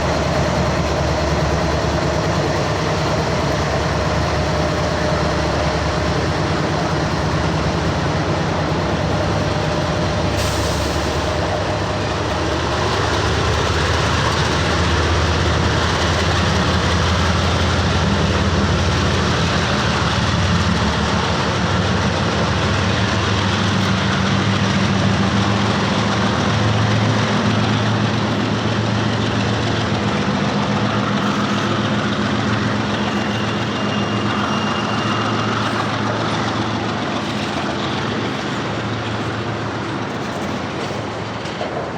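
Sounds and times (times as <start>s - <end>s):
diesel locomotive engines: 0.0s - 41.9s
train wheels rumbling on rails: 0.0s - 41.9s.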